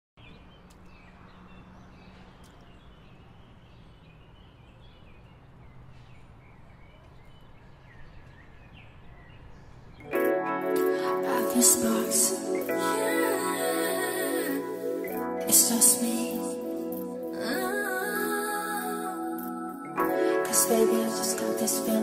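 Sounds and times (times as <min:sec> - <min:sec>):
music: 0:10.0 - 0:22.0.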